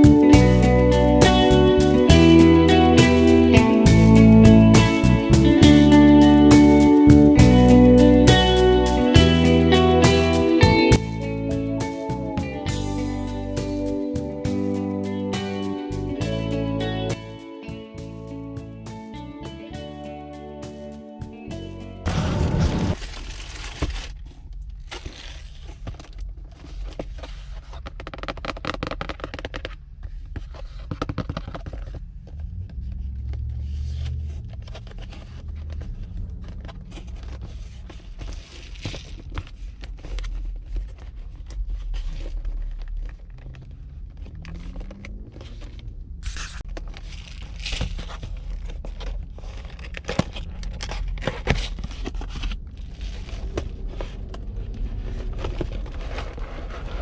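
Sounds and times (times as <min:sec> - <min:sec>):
packaging crinkling: 0:22.9 - 0:24.2.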